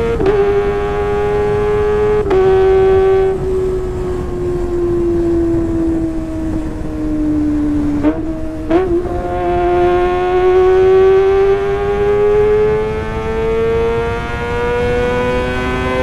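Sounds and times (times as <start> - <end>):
motorcycle engine at high revs: 0.0 - 16.0.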